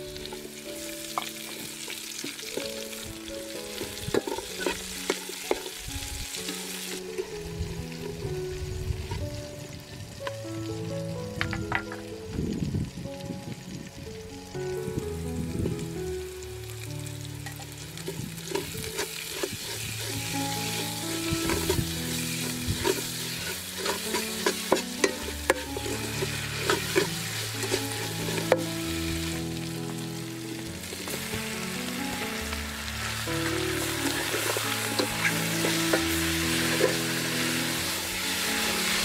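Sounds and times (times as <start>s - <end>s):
aromatics sizzling in hot oil: 0.0s - 39.0s
metal ladle scraping pot: 3.7s - 9.3s, 17.4s - 29.4s, 32.3s - 39.0s.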